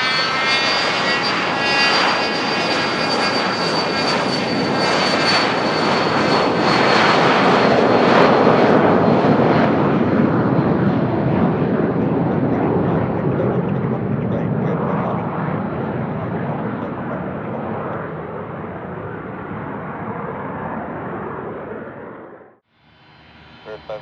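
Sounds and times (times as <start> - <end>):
jet roar: 0.0 - 24.0
jet turbine whine: 0.0 - 24.0.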